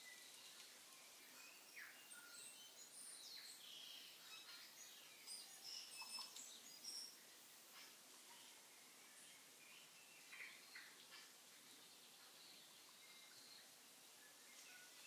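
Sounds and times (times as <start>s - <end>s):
quiet hiss: 0.0s - 15.0s
bird chirps and whistles: 5.8s - 7.2s.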